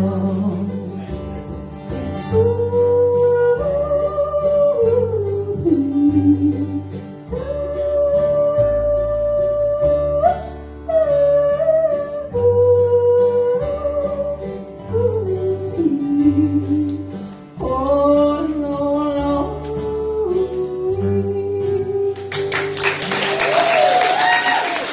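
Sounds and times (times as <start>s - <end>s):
acoustic guitar: 0.0s - 24.9s
person yodeling: 2.4s - 16.8s.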